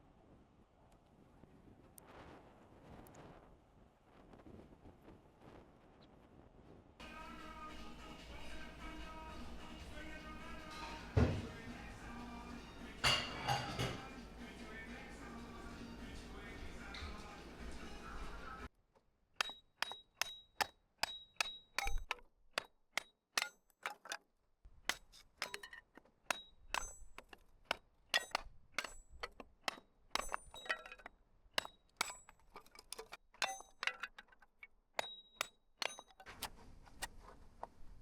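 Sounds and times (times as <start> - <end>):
sharp metallic clinks and knocks: 12.2 - 14.1, 19.4 - 24.2, 24.8 - 36.5.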